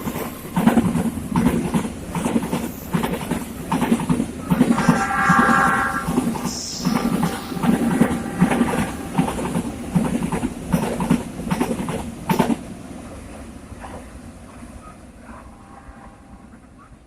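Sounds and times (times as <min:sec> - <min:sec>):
train wheels clacking on rails: 0:00.0 - 0:12.7.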